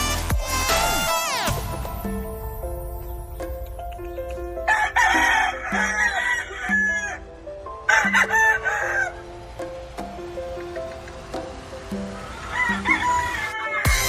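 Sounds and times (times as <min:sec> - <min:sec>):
background music: 0:00.0 - 0:14.0
rooster crowing: 0:04.7 - 0:09.2, 0:12.1 - 0:14.0.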